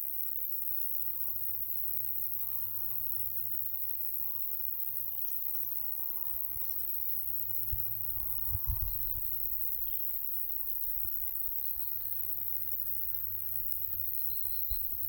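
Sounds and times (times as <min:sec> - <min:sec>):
insects chirring: 0:00.1 - 0:15.0
wind bumps on microphone: 0:07.7 - 0:09.4
faint short bird calls: 0:14.3 - 0:14.9.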